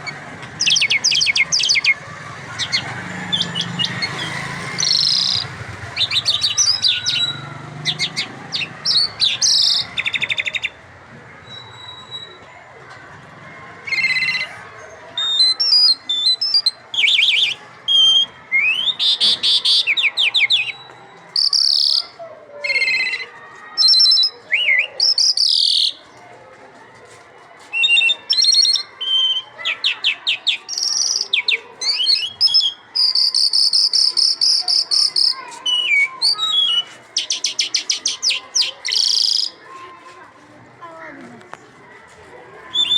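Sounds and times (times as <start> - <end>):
lark singing: 0.6 - 2.0, 2.6 - 10.8, 15.2 - 23.2, 23.8 - 26.0, 27.8 - 39.6.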